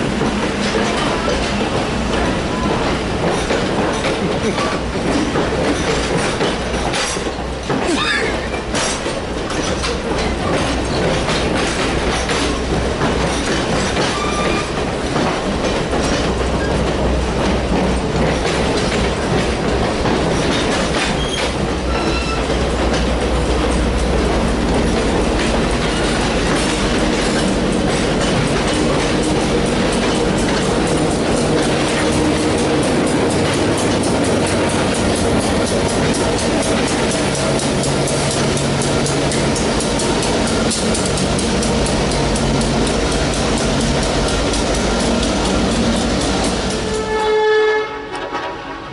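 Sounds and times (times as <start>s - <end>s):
train wheels clicking over rail joints: 0.0s - 48.9s
high wheel squeals: 14.1s - 14.8s, 21.2s - 22.5s.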